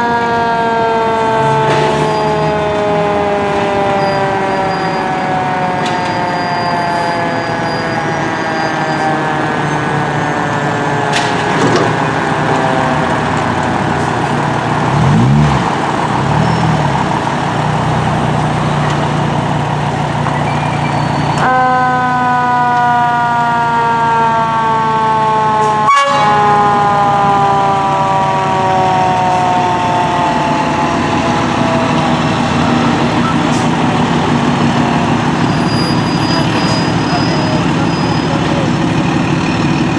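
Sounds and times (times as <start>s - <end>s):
fire engine siren: 0.0s - 39.9s
truck engine running: 9.5s - 21.4s, 26.6s - 39.9s.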